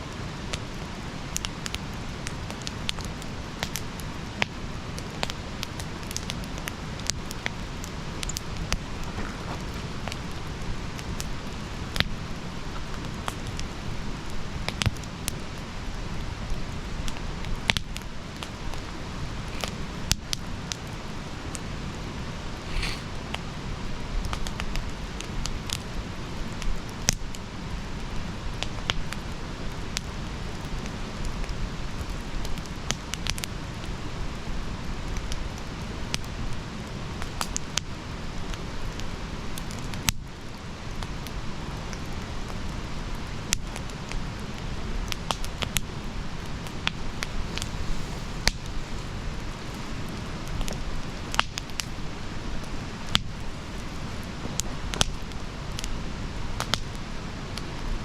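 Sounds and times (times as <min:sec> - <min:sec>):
campfire burning: 0:00.0 - 0:58.0
wood crackling and popping: 0:00.4 - 0:21.7, 0:35.1 - 0:56.0, 0:56.6 - 0:57.0.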